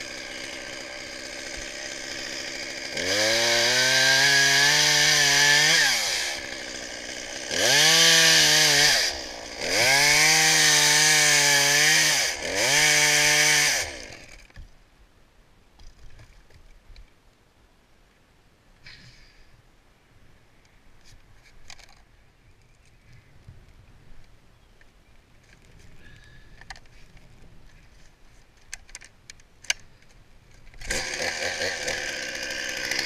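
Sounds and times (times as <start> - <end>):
chainsaw idling and revving: 0.0 - 14.6, 30.8 - 33.0.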